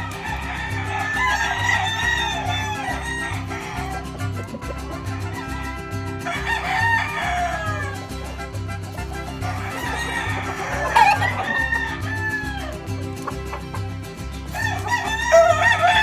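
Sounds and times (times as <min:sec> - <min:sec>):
rooster crowing: 0:00.0 - 0:12.9, 0:14.5 - 0:16.0
music with bass beat: 0:00.0 - 0:16.0.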